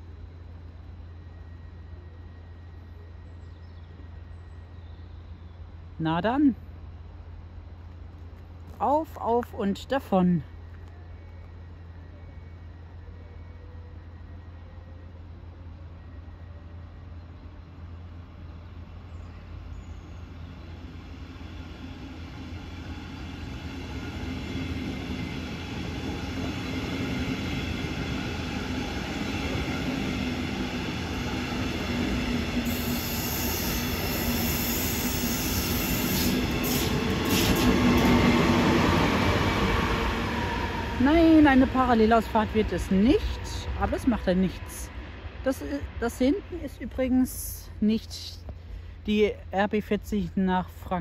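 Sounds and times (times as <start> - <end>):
train wheels rumbling: 17.8 - 47.9
high hiss: 32.6 - 38.2.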